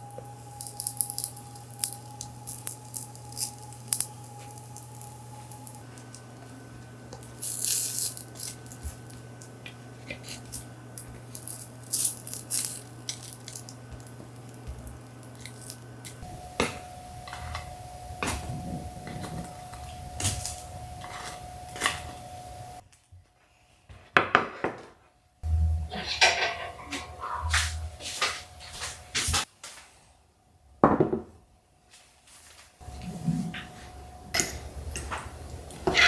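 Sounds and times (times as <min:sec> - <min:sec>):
steady low hum: 0:00.0 - 0:22.8, 0:25.4 - 0:29.4, 0:32.8 - 0:36.0
kitchenware clinking: 0:07.1 - 0:22.8, 0:25.8 - 0:28.9, 0:32.9 - 0:36.0.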